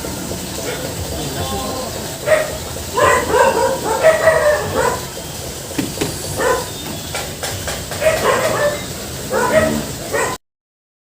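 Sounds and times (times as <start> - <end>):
dog barking and yelping: 2.2 - 5.1, 6.2 - 6.8, 7.9 - 10.4
sharp knocks: 5.7 - 8.4.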